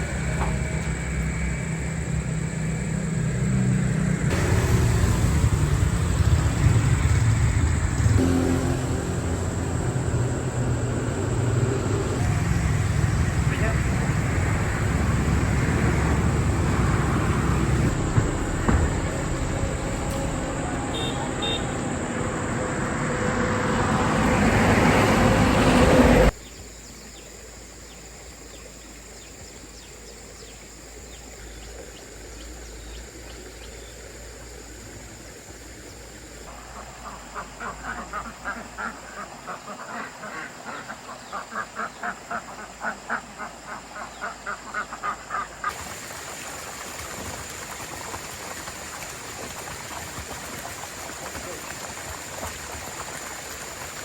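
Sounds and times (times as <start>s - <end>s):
loud rushing noise: 4.3s - 26.3s
ducks quacking: 36.5s - 45.7s.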